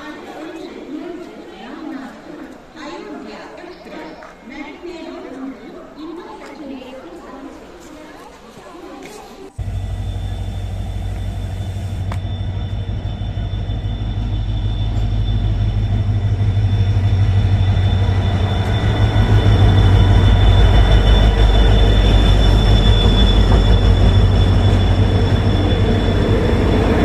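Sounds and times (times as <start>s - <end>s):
train rumbling: 9.5s - 27.0s
high-pitched train whine: 9.6s - 27.0s.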